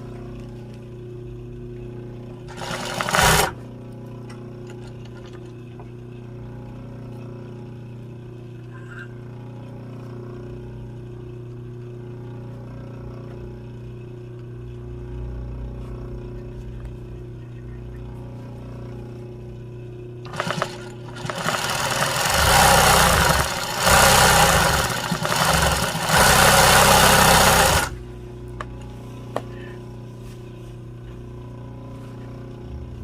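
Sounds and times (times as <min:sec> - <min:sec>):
sewing machine running fast: 0:02.5 - 0:03.6, 0:20.2 - 0:28.0
low hum: 0:03.6 - 0:20.3, 0:27.8 - 0:33.0.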